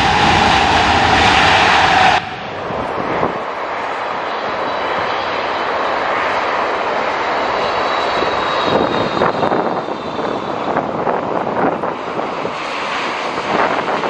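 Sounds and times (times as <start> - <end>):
jet engines rushing: 0.0 - 14.0
wind buffeting microphone: 0.0 - 14.0
faint high whine: 3.5 - 10.9.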